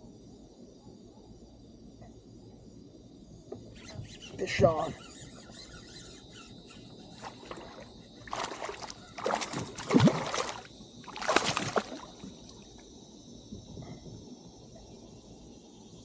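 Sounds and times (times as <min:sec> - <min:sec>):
fish splashing in water: 0:06.8 - 0:12.7.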